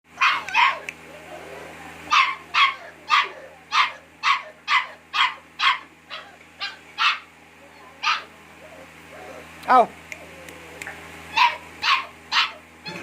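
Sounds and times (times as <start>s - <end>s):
puppy barking: 0.2s - 0.9s, 2.1s - 7.3s, 8.0s - 8.9s, 11.3s - 13.0s.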